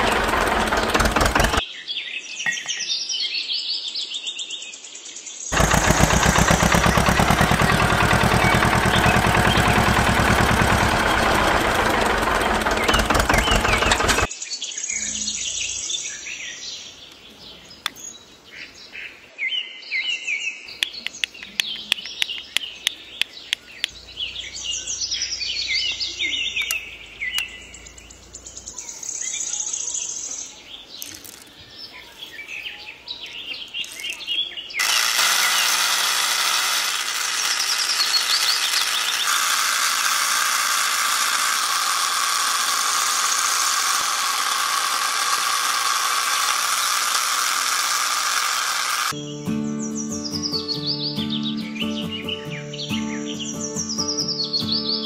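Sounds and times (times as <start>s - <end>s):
small electric motor running: 0.0s - 1.6s, 5.5s - 14.3s, 34.8s - 49.2s
birds chirping: 0.0s - 3.5s, 5.4s - 39.4s, 42.1s - 55.0s.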